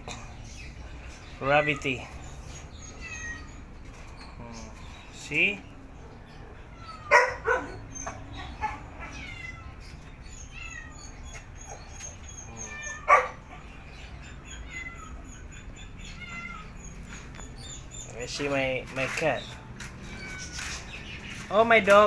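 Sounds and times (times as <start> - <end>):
small birds chirping: 0.0 - 22.0
dog barking: 6.0 - 9.2, 13.0 - 13.7.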